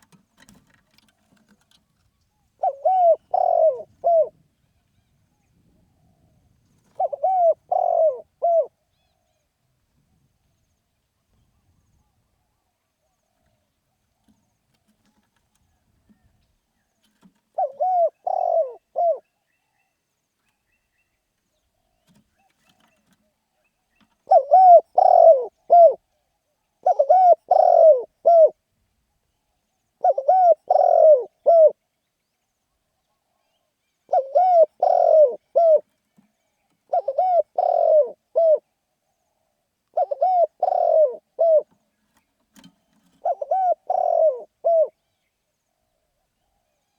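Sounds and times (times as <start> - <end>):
dove cooing: 0.0 - 4.4, 5.7 - 9.4, 17.0 - 19.3, 24.0 - 26.1, 26.8 - 28.6, 30.0 - 31.8, 33.1 - 38.7, 39.3 - 45.0.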